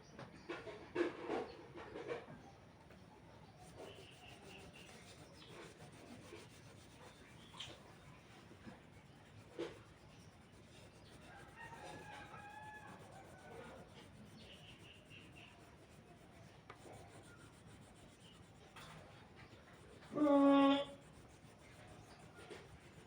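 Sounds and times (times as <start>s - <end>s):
paintbrush rubbing: 3.4s - 23.0s
rooster crowing: 11.3s - 13.8s.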